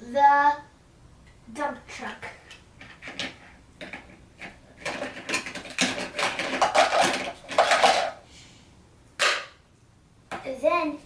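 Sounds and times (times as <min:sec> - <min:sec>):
plastic toy rocks rattling: 0:04.8 - 0:08.2.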